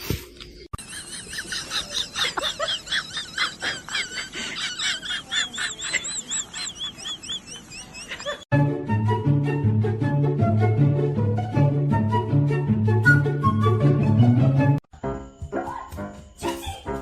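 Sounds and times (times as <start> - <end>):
small birds chirping rapidly: 5.2 - 8.4.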